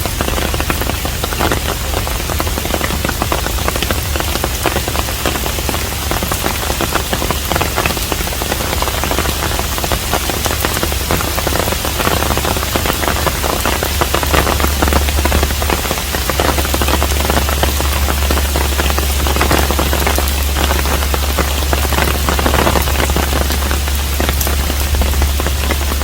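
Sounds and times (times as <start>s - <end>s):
rain falling on a roof: 0.0s - 26.0s.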